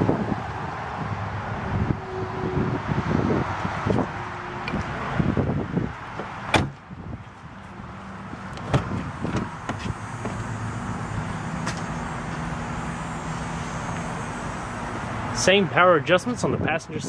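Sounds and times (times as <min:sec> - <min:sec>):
car door shutting: 0:06.1 - 0:06.8, 0:08.5 - 0:10.5, 0:11.6 - 0:12.1
steady low hum: 0:06.7 - 0:15.7.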